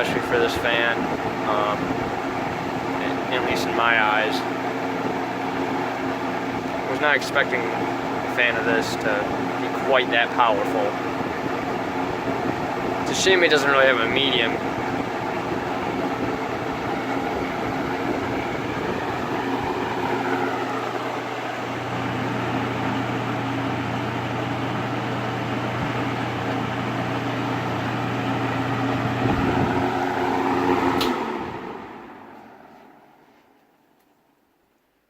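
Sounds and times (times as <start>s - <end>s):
box fan running: 0.0s - 35.0s
fan switch click: 29.2s - 31.8s.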